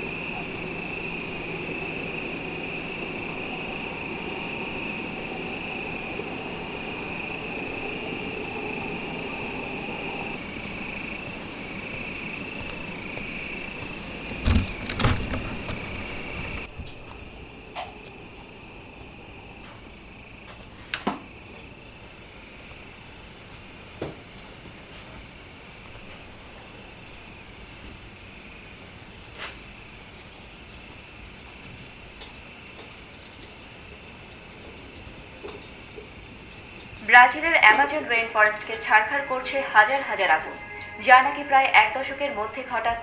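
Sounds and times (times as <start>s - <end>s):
high-pitched insect chorus: 21.5s - 26.8s.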